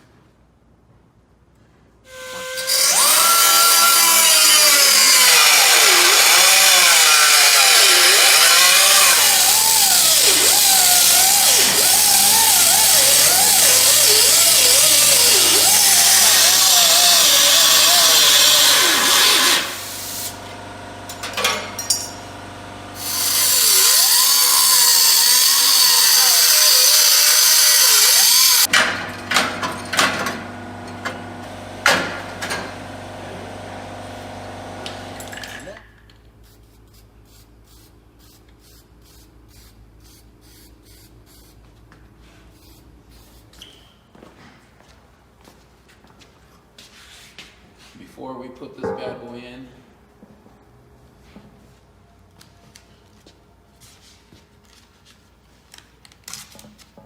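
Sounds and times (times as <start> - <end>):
handheld power tool running: 2.1 - 21.4, 22.9 - 28.7.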